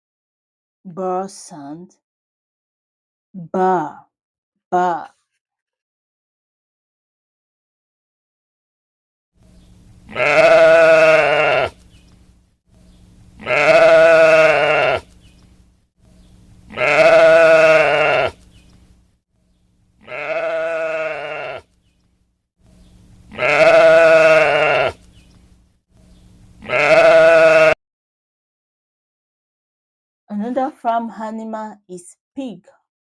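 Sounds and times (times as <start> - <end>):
sheep bleating: 10.1 - 11.8, 13.4 - 15.1, 16.7 - 18.4, 20.0 - 21.7, 23.3 - 25.0, 26.6 - 27.8.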